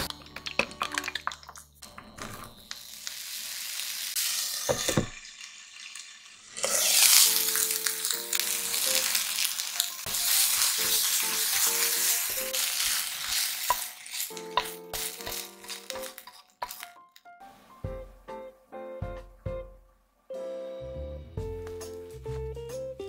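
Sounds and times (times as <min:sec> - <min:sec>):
peppers sizzling in oil: 0:00.0 - 0:17.3
spatula stirring in pan: 0:06.0 - 0:17.0.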